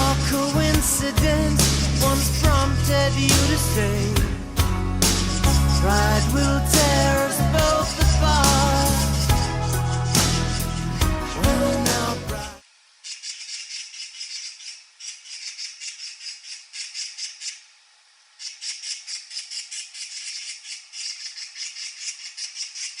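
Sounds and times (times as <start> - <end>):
magpie chattering: 13.1 - 17.6, 18.4 - 23.0.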